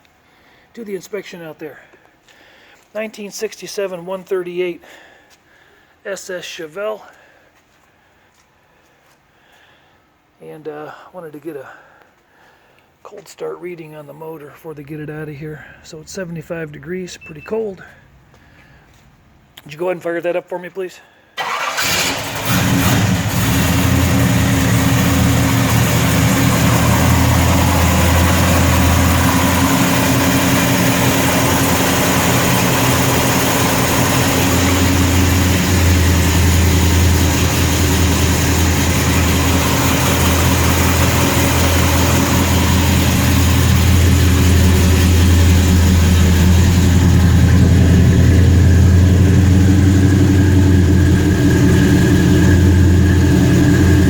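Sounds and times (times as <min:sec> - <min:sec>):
car engine idling: 0:21.4 - 0:54.0.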